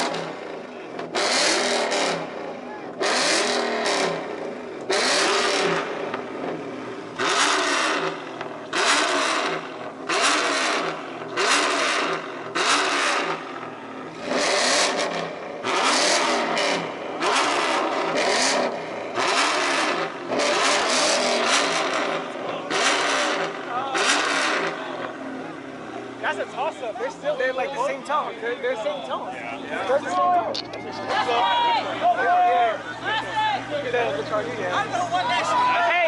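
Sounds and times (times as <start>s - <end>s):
car engine revving through loud exhaust: 0.0s - 26.6s.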